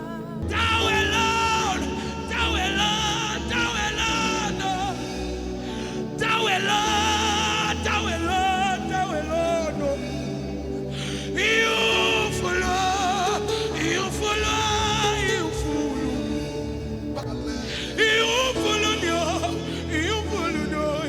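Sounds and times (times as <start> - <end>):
person singing with vibrato: 0.0 - 21.0.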